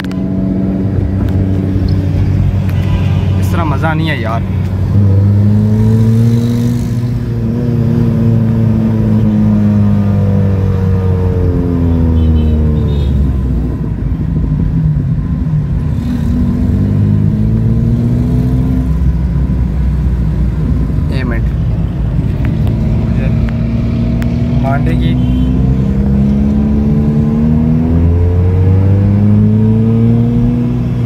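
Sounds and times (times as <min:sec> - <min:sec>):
car engine accelerating: 0:04.6 - 0:12.7, 0:13.6 - 0:31.0.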